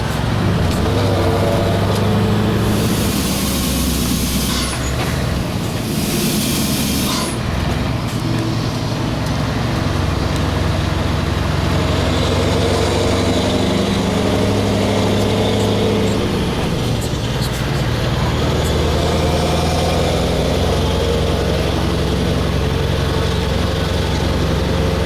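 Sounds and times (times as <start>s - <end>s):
truck diesel engine running: 0.0s - 25.0s
compressed air hiss: 0.9s - 7.5s.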